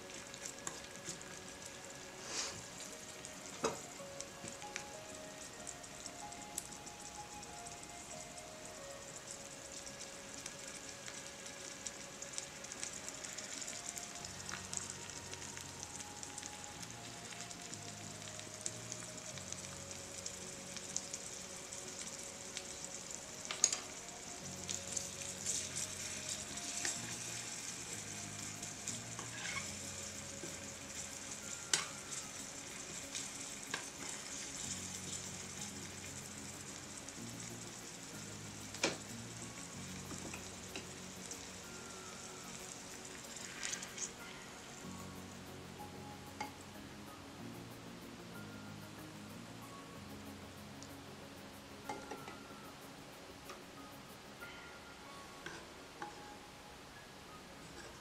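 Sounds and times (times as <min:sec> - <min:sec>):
oil sizzling with vegetables: 0:00.0 - 0:58.0.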